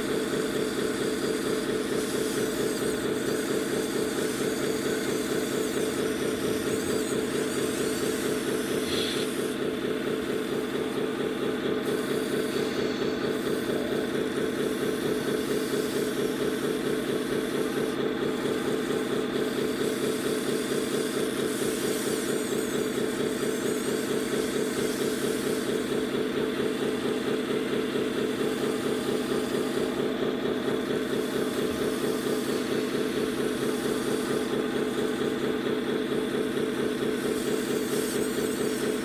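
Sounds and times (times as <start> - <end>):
diesel truck engine idling: 25.8 - 39.0.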